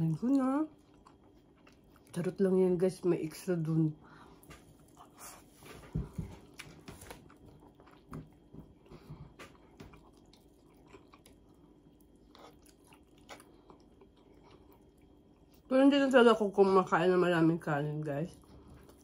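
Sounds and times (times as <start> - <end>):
person chewing food: 0.0 - 2.2, 4.1 - 15.7, 18.3 - 19.0.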